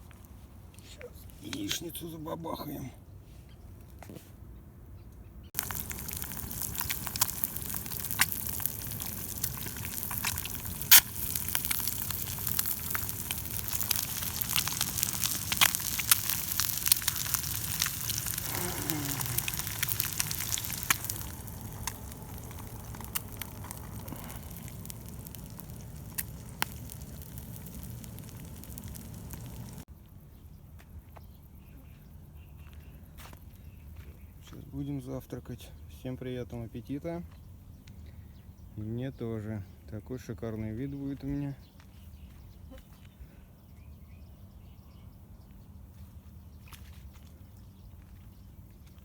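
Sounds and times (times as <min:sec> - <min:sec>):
eggs sizzling in a pan: 0:05.6 - 0:29.9.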